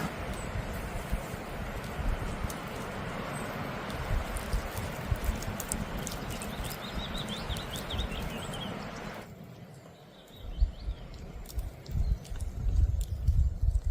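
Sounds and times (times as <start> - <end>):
steady rushing noise with clicks: 0.0 - 13.9
bird chirping: 2.2 - 13.9.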